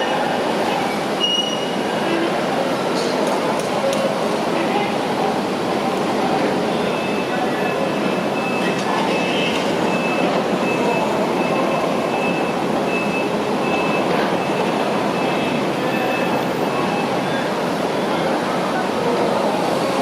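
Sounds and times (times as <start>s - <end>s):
heavy construction machinery running: 0.0s - 20.0s
backup alarm beeping: 6.9s - 17.2s.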